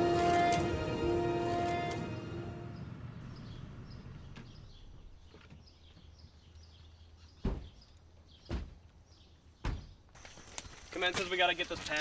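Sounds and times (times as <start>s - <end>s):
small birds chirping: 3.2s - 12.0s
dull thumps: 7.4s - 9.0s, 9.6s - 10.2s.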